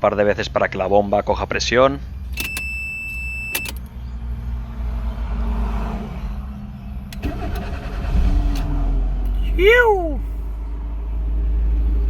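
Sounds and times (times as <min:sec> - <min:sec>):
car engine running: 0:02.0 - 0:11.5
starter cranking car engine: 0:02.2 - 0:04.0, 0:06.2 - 0:09.4
clicks: 0:02.3 - 0:03.9.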